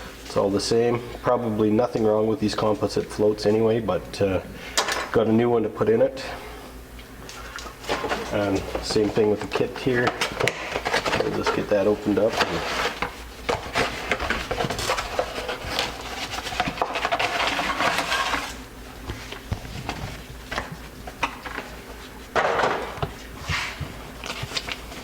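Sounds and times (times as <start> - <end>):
packaging crinkling and rustling: 7.4 - 25.0.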